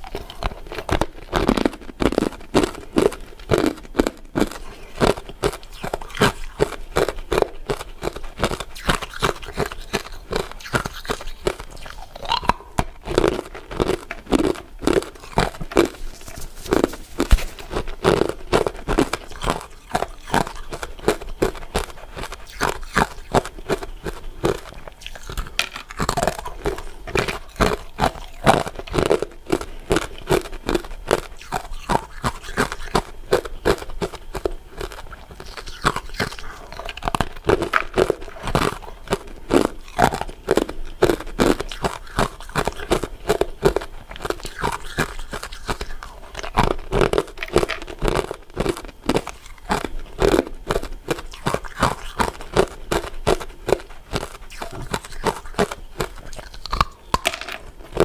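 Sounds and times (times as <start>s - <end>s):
person crunching ice dessert: 0.0s - 58.0s.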